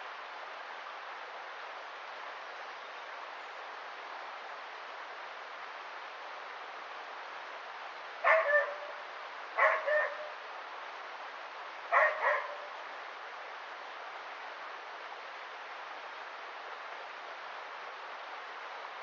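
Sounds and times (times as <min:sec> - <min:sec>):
river rushing: 0:00.0 - 0:19.0
dog barking: 0:08.2 - 0:09.0, 0:09.6 - 0:10.3, 0:11.9 - 0:12.7.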